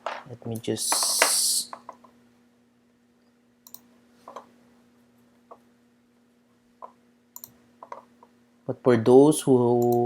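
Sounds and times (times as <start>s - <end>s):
low electrical hum: 0.0s - 10.0s
faint clicks and taps: 6.8s - 8.4s.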